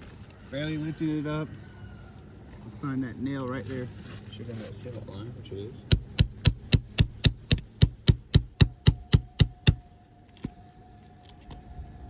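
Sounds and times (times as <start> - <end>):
hammer striking metal tool: 5.9 - 9.8.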